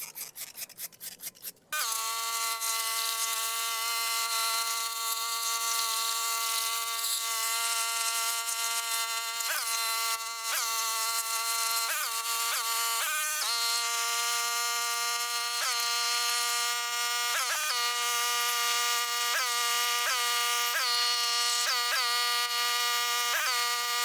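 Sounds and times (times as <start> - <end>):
power tool motor whining: 1.8 - 24.0.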